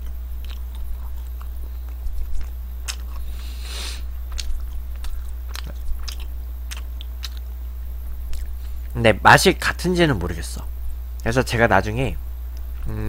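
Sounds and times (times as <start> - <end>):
person chewing doughnut: 0.0 - 7.6, 8.3 - 9.0
steady low hum: 0.0 - 13.0
wet mouth clicks: 4.3 - 7.5.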